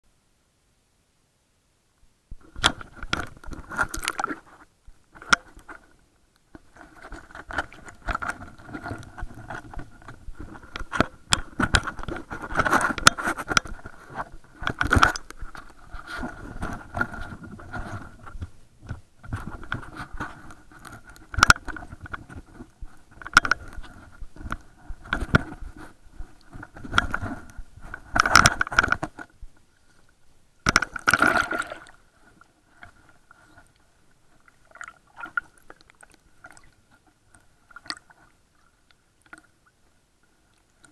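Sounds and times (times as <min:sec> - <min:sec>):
scraping rustling noise: 0:02.4 - 0:30.1
sharp clicks and knocks: 0:06.5 - 0:15.8, 0:16.6 - 0:25.6, 0:30.6 - 0:31.4.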